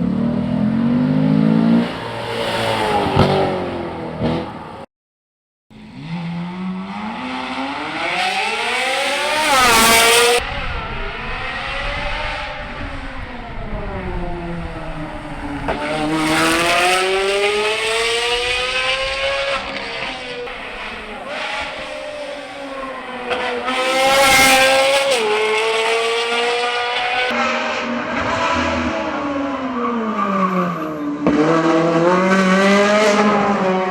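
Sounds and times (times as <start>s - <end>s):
sports car engine revving: 5.9s - 29.3s.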